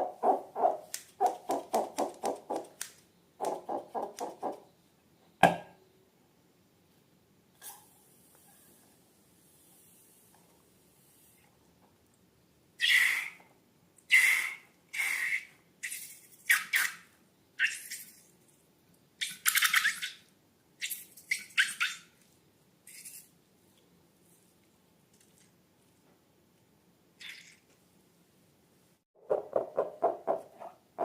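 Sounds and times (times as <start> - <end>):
squeaky hissing squelches: 12.8 - 13.4, 14.1 - 18.3.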